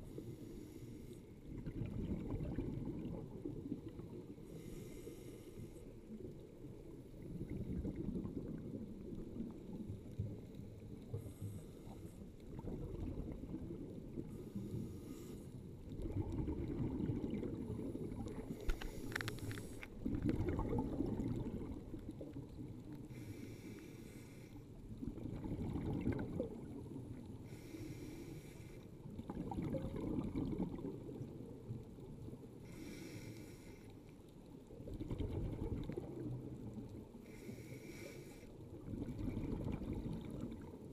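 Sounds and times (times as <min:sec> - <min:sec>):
regulator inhale hiss: 0:00.0 - 0:01.4, 0:04.4 - 0:06.0, 0:11.1 - 0:12.2, 0:14.3 - 0:15.7, 0:18.4 - 0:20.0, 0:23.0 - 0:24.8, 0:27.4 - 0:28.9, 0:32.6 - 0:34.1, 0:37.2 - 0:38.6
exhaled air bubbling: 0:01.4 - 0:23.5, 0:24.7 - 0:33.5, 0:34.6 - 0:40.9.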